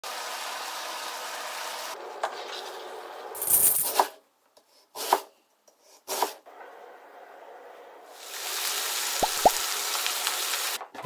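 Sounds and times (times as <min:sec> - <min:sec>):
food sizzling in a frying pan: 0:00.0 - 0:02.0, 0:08.1 - 0:10.8.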